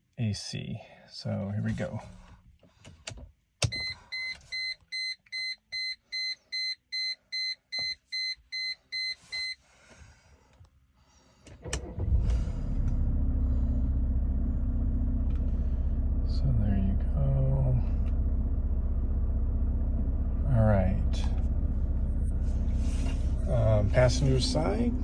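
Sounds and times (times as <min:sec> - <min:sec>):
car engine cranking and idling: 0:01.3 - 0:04.5, 0:11.4 - 0:25.0
dashboard warning chime beeping: 0:03.6 - 0:09.6.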